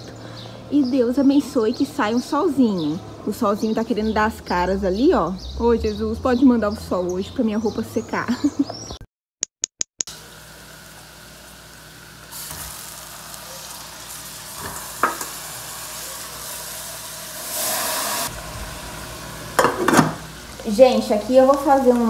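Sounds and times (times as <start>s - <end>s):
garlic and onion sizzling in a pan: 10.1s - 22.0s.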